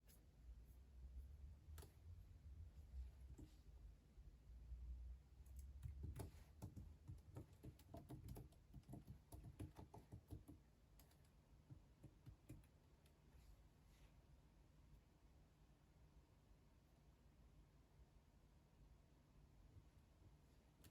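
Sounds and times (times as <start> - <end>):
typing on computer keyboard: 5.5 - 12.7.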